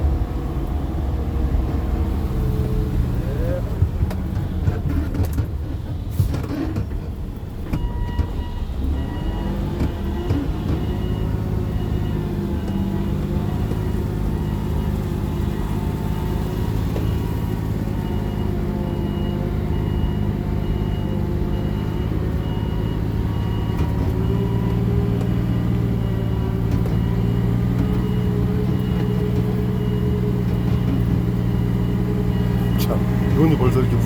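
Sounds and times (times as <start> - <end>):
reversing warning beeps: 7.7 - 34.0
vehicle engine running: 8.5 - 34.0.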